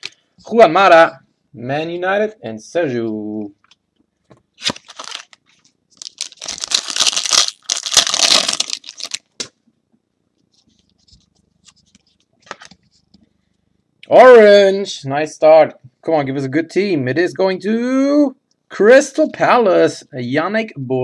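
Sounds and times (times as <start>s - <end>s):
wrapper rustling and tearing: 4.6s - 9.4s.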